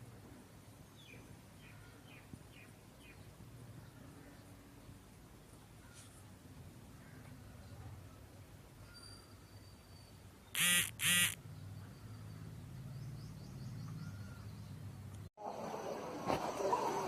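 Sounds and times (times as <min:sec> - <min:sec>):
bird harsh calls: 0:10.6 - 0:11.4.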